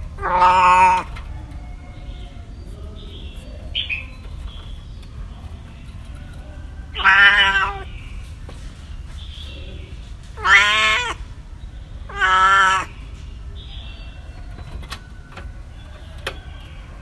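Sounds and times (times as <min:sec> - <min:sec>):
cat meowing: 0:00.1 - 0:01.2, 0:06.9 - 0:07.9, 0:10.4 - 0:11.2, 0:12.1 - 0:13.0.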